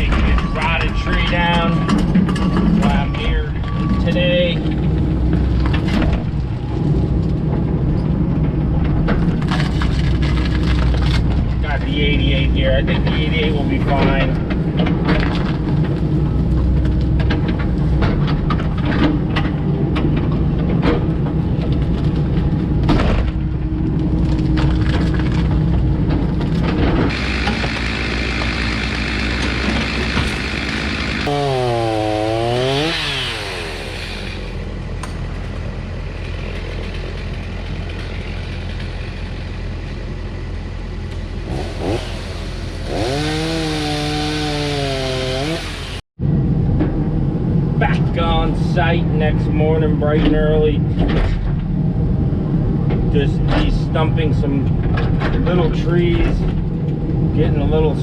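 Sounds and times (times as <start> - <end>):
excavator diesel engine working: 0.0 - 48.9
wood cracking and knocking: 8.9 - 11.5, 14.0 - 23.5.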